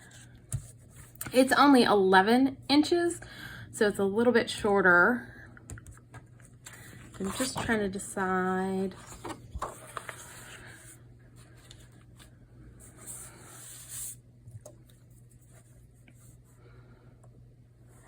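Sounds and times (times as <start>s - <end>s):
paper rustling: 6.1s - 8.0s, 8.9s - 12.3s
paper brushing scrapes: 12.8s - 14.2s.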